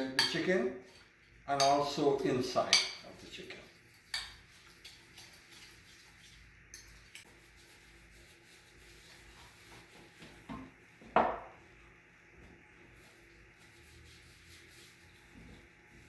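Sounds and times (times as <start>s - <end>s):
dish set down knock: 10.6s - 11.5s.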